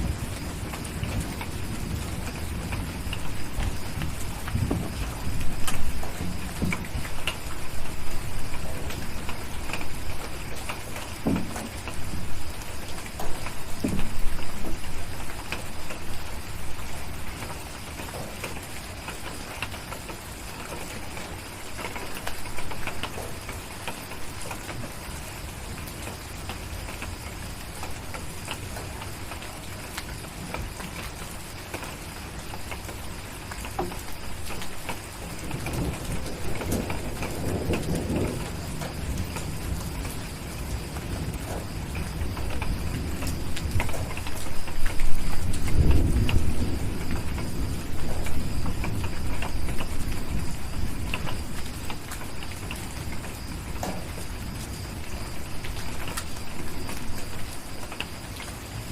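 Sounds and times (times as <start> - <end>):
distant thunder rumbles: 0.0 - 19.5, 33.7 - 58.2
steady rain hiss: 0.0 - 58.9.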